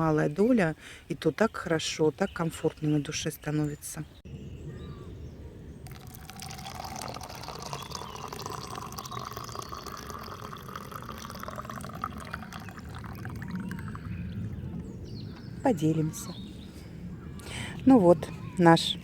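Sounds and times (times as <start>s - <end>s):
liquid pouring into container: 5.8s - 14.2s.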